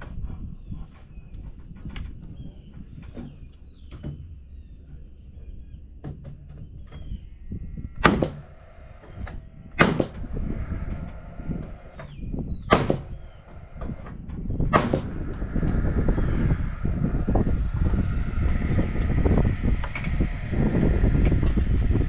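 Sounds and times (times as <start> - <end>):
wind rumbling on microphone: 0.0 - 22.0
loud sharp knocks: 8.0 - 10.7, 11.7 - 14.1, 14.7 - 15.6.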